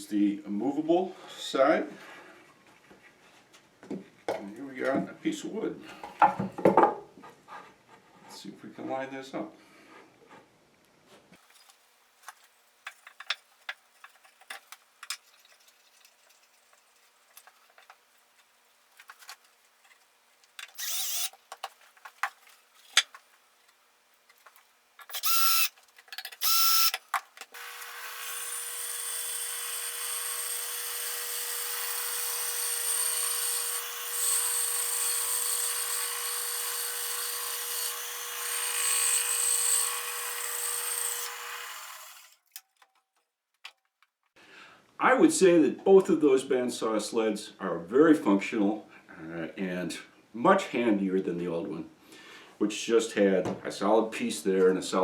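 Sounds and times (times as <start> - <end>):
bandsaw cutting wood: 20.7 - 21.4, 25.0 - 25.8, 26.4 - 42.4.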